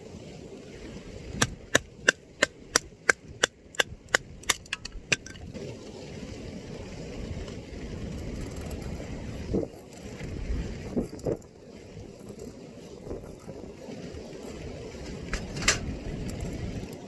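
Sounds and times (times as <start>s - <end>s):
low rumble of wind: 0.0s - 17.0s
sharp knocks: 1.4s - 5.4s.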